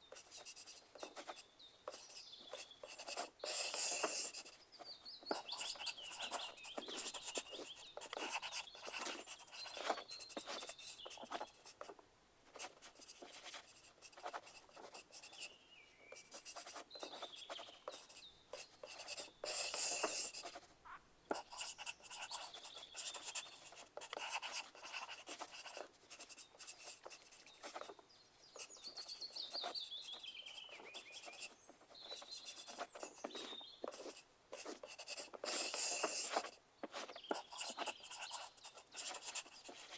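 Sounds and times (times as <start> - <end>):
pencil lead squeak: 0.1 - 4.6, 16.1 - 27.9, 28.6 - 39.9
pencil scratching on paper: 0.1 - 4.6, 5.3 - 11.9, 12.6 - 15.5, 16.2 - 20.7, 21.3 - 28.0, 28.6 - 39.9.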